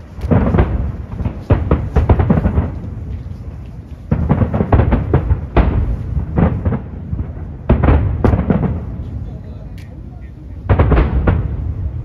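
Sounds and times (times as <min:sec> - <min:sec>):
firework shells bursting: 0:00.0 - 0:09.0.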